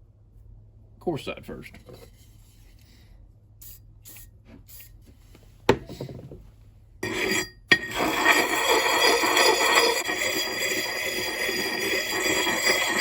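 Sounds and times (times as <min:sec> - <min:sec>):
sharpening puck scraping axe: 0:07.0 - 0:13.0.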